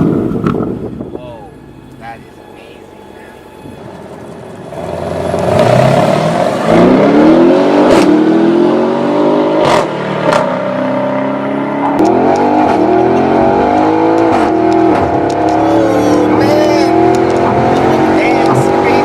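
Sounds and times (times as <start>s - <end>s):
car engine accelerating hard: 4.7s - 19.0s.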